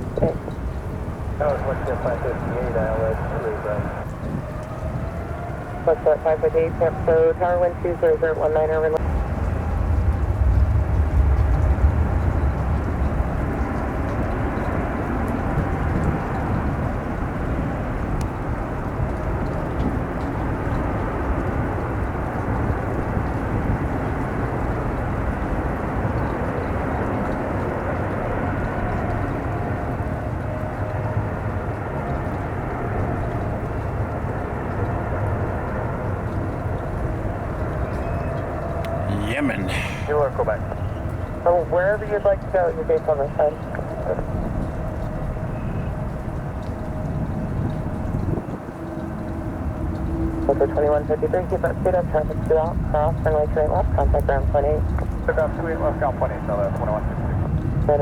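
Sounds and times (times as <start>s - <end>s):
jet engine rumble: 0.0s - 5.1s
wind noise: 0.0s - 21.8s.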